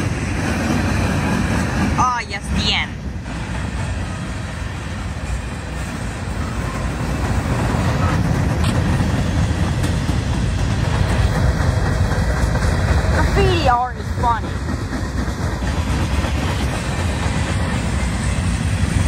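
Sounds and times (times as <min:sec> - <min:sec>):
steel wheels rolling on rails: 0:00.0 - 0:19.0.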